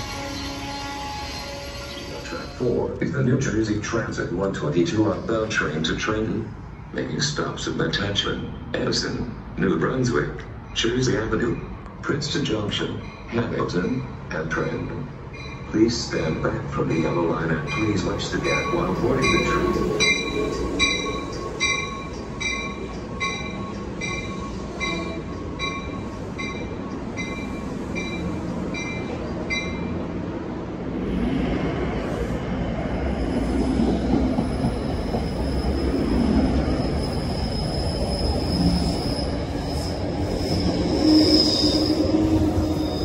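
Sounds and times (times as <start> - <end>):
wheels rumbling on rail: 0.0 - 43.0
train door warning chime beeping: 15.4 - 30.0.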